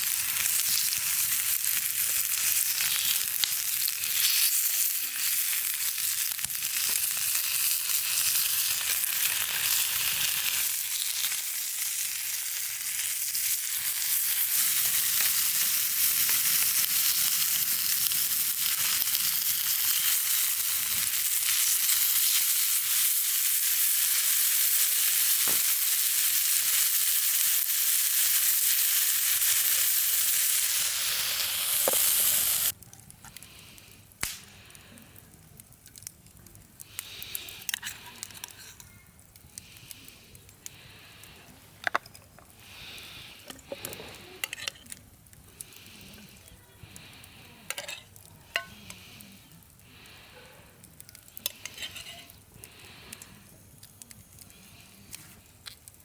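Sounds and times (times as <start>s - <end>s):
food sizzling in a pan: 0.0s - 32.8s, 47.7s - 49.2s, 51.2s - 53.0s.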